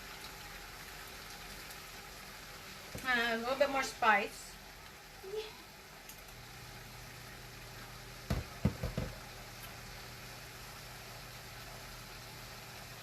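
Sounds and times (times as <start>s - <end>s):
food cooking in a pot: 0.0s - 13.0s
quick knocks: 8.3s - 9.2s.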